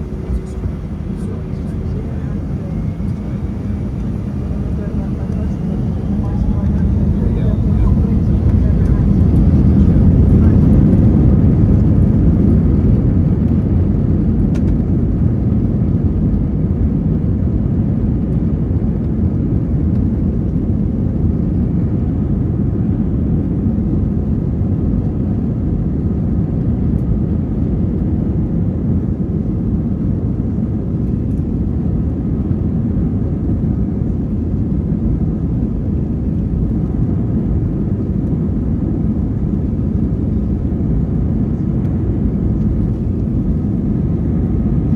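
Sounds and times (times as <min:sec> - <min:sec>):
rushing air: 0:00.0 - 0:11.6
jet engine rumble in cabin: 0:00.0 - 0:44.9.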